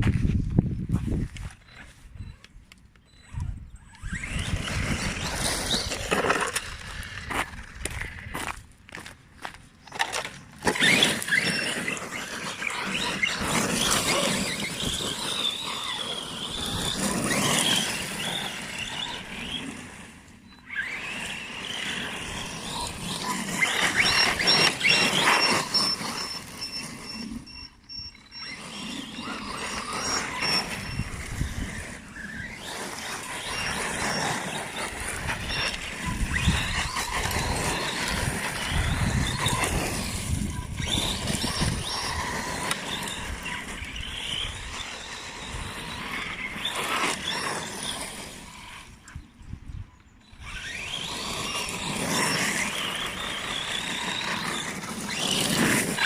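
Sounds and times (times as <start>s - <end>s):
electric motor whine: 9.4s - 56.0s
thin high whine: 22.8s - 50.3s.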